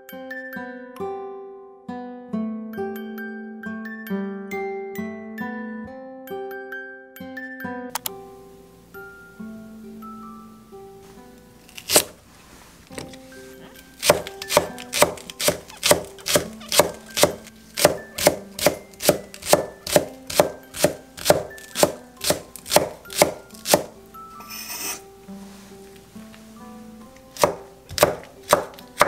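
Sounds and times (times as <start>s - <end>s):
soft background music: 0.0s - 29.0s
cleaver chopping on wooden board: 14.0s - 23.9s, 27.4s - 29.0s
knife blade scraping board: 14.0s - 25.0s.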